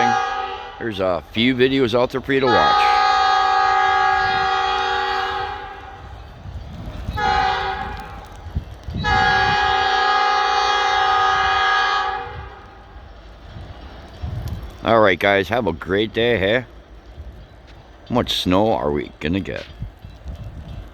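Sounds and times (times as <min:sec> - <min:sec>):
locomotive air horn blasts: 0:00.0 - 0:01.2, 0:02.3 - 0:06.1, 0:07.1 - 0:08.4, 0:09.0 - 0:12.6.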